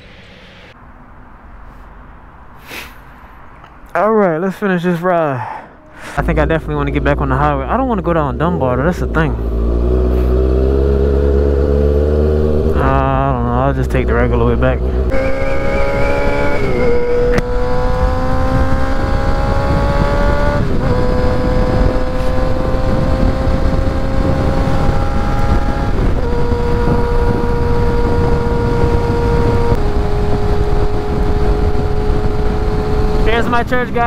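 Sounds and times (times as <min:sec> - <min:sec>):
wind rushing: 0:00.0 - 0:02.4, 0:09.2 - 0:34.0
motorcycle engine at speed: 0:06.2 - 0:34.0.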